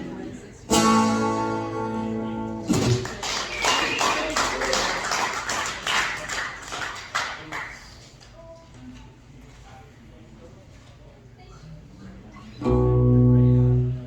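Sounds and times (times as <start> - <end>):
acoustic guitar chord strummed: 0.0 - 3.0, 12.6 - 14.0
audience applauding: 2.8 - 8.1.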